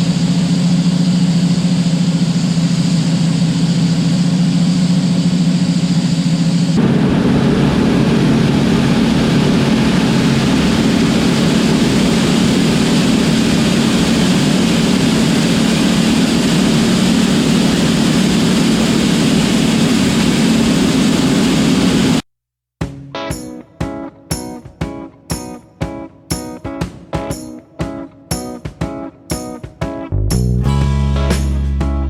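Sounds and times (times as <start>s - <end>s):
combine harvester engine drone: 0.0s - 22.2s.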